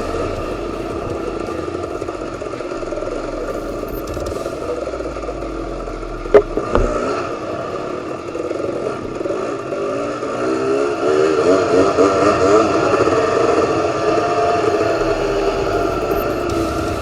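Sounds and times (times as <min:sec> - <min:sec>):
sharp knock: 0:00.0 - 0:05.0
motorcycle engine running: 0:00.0 - 0:11.8, 0:13.7 - 0:17.0.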